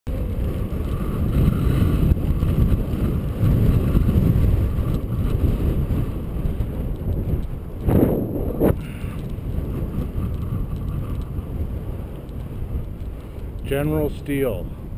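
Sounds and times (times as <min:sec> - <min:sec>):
wind buffeting microphone: 0:00.1 - 0:14.9.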